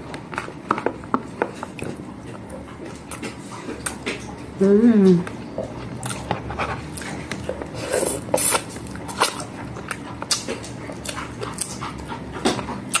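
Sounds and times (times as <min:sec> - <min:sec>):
crispy fish crunching: 0:05.7 - 0:13.0.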